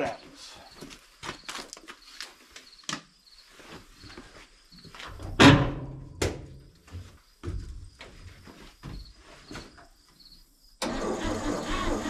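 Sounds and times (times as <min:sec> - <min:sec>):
truck engine cranking: 0:10.8 - 0:12.0.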